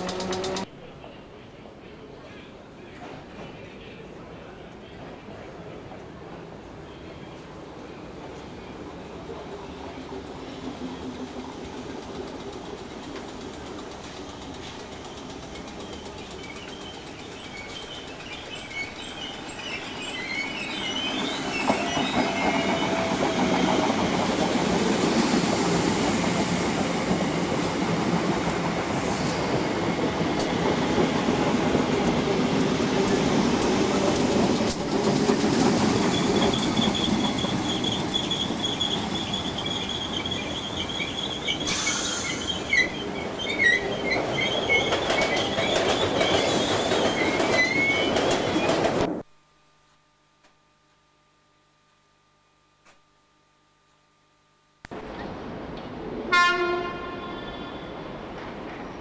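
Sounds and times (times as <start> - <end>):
train wheels rumbling on rail: 0.0 - 0.7, 8.2 - 49.2, 55.0 - 59.0.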